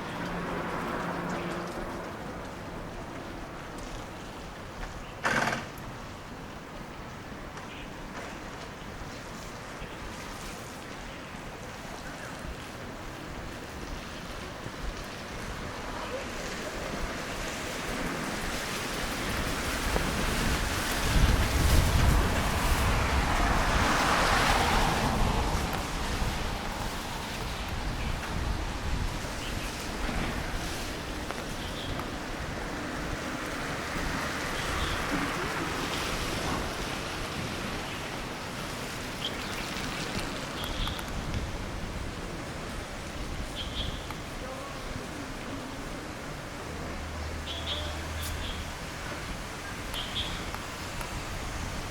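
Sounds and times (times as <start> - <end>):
vehicle passing: 0.0 - 3.7, 17.5 - 31.1
tyres hissing on wet road: 0.0 - 51.9
wind on microphone: 8.4 - 47.1, 48.2 - 51.9.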